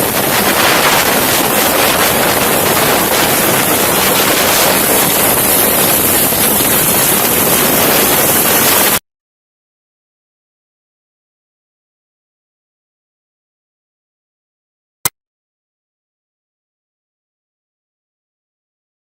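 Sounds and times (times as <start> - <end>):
helicopter rotor and engine: 0.0 - 9.0
wind rushing over microphone: 0.0 - 9.0.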